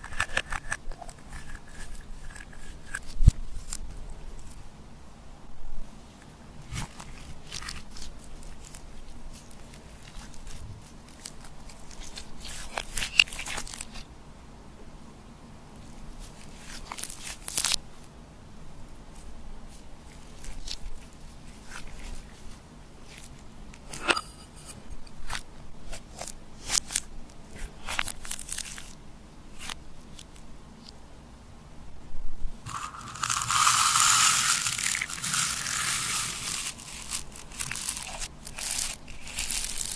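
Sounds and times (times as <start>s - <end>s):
slime crackling and clicking: 32.7s - 39.9s.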